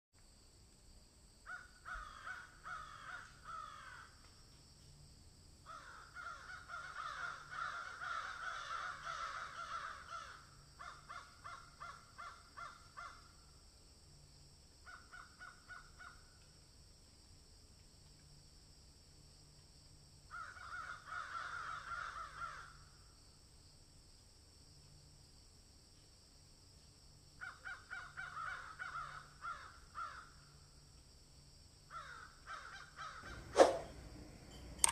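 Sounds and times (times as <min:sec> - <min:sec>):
faint steady hiss: 0:00.2 - 0:02.6
harsh repeated bird calls: 0:32.0 - 0:34.9.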